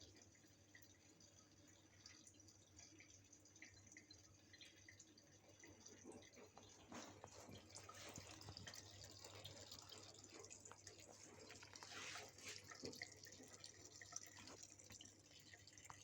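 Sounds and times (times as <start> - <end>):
small drips and ticks: 0.0 - 16.0
water trickling from a faucet: 0.0 - 16.0.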